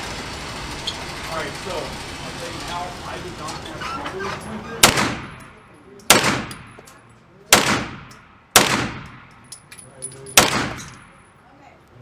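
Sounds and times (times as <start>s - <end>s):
gunshots with echo: 4.8s - 6.8s, 7.5s - 9.4s, 10.4s - 11.2s.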